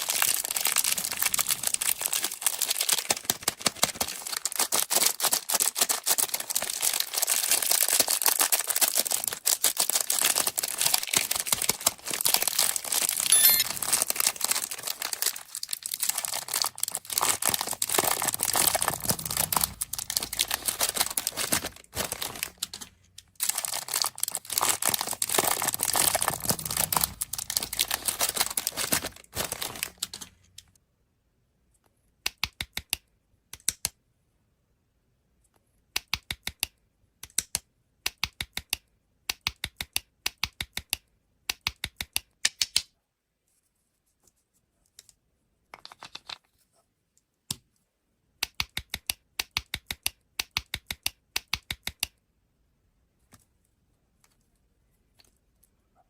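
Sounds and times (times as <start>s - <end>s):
candy wrappers crinkling: 0.0s - 30.6s.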